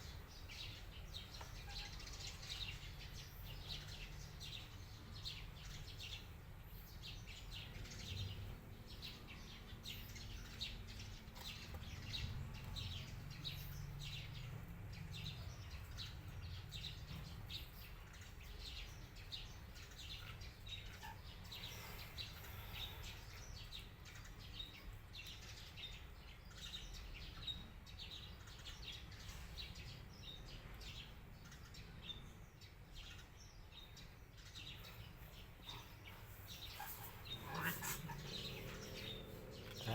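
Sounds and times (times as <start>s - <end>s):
birds chirping high: 0.0s - 39.9s.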